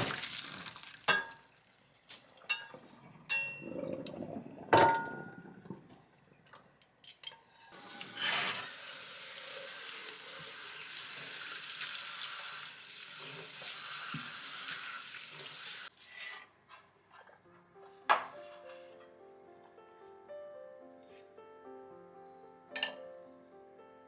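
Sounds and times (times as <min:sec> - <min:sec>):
food sizzling in hot oil: 0:07.6 - 0:15.9.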